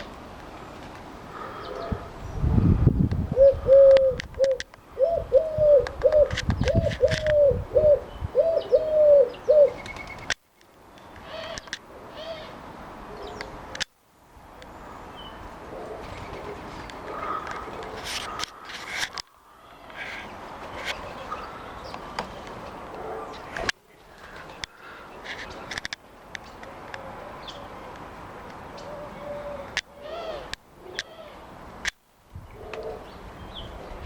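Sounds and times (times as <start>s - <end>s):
wind on microphone: 1.7s - 9.2s
dove cooing: 3.3s - 9.8s, 15.7s - 18.7s, 28.8s - 31.4s.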